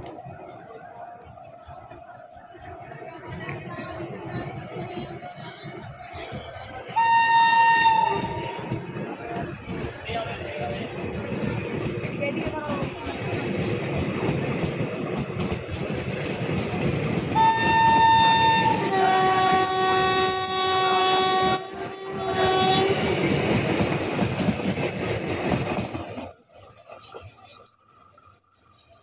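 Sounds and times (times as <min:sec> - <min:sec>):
train wheels clattering on rails: 0:01.1 - 0:29.0
train horn blasts: 0:06.8 - 0:08.9, 0:17.3 - 0:23.3.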